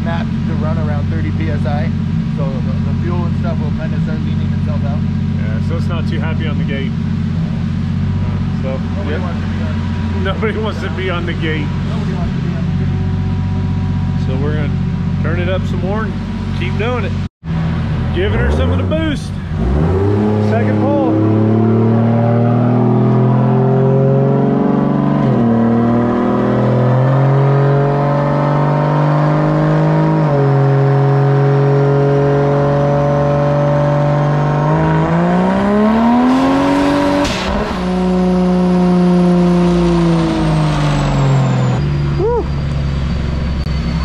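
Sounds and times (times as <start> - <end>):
car engine at full throttle: 0.0 - 44.0
turbo whine: 36.8 - 44.0
falling whistle: 41.8 - 44.0.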